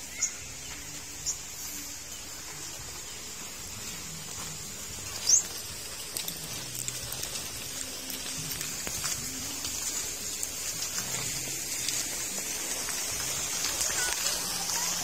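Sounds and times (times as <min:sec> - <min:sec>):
small bird chirps: 0:00.0 - 0:02.4, 0:05.1 - 0:05.7
outdoor ambience hiss: 0:00.0 - 0:15.0.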